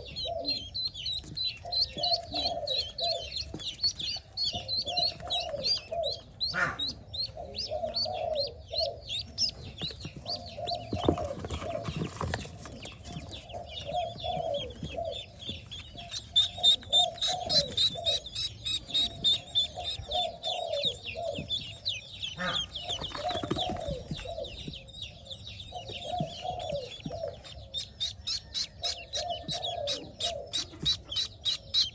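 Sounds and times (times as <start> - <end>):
ducklings peeping: 0.0 - 31.9.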